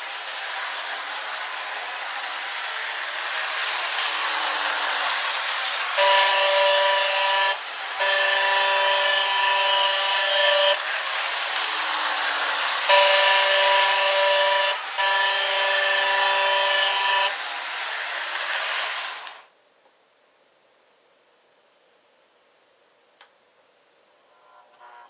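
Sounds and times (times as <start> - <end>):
model train motor and wheels: 0.0 - 19.5
model train horn blasts: 6.0 - 10.9, 12.9 - 17.4, 24.3 - 25.0.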